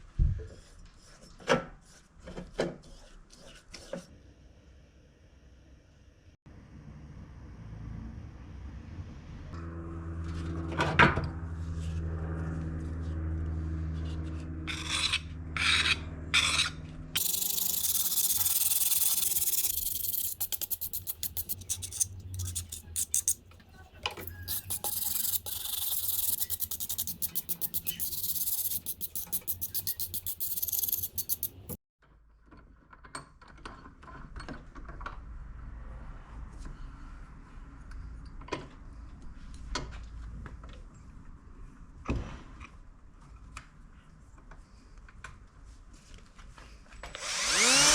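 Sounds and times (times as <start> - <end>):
rasping filing strokes: 16.5 - 23.4, 24.2 - 31.8
scattered ticks and scrapes: 17.2 - 23.4, 24.1 - 31.8.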